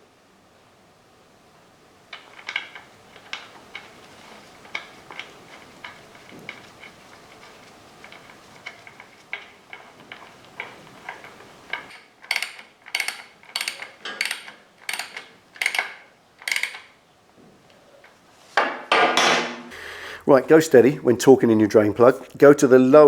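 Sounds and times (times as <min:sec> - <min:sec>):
ratchet wrench clicking: 0:11.2 - 0:16.9.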